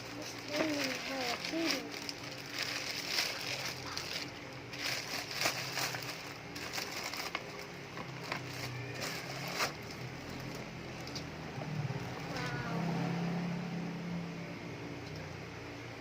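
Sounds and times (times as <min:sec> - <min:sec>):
packaging crinkling: 0:00.0 - 0:11.3
low steady hum: 0:00.0 - 0:16.0.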